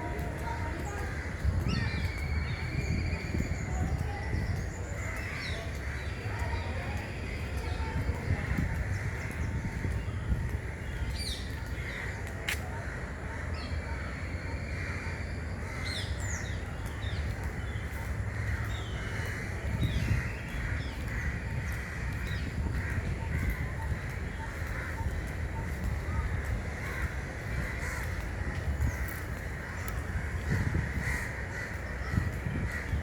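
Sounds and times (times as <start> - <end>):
harsh cawing calls: 26.2 - 33.0.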